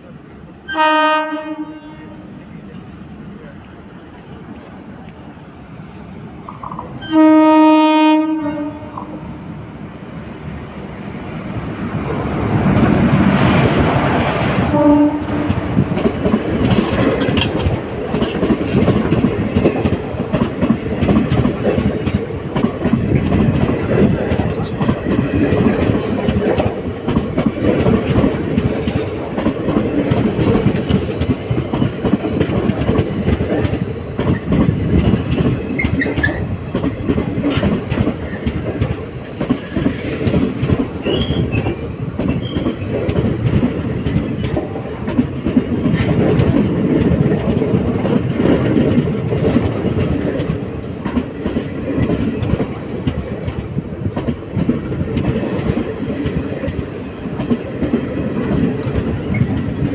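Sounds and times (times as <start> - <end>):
train rumbling past: 0.0 - 59.9
wheels clickety-clack over joints: 12.1 - 59.9
faint wheel squeal: 30.4 - 37.4.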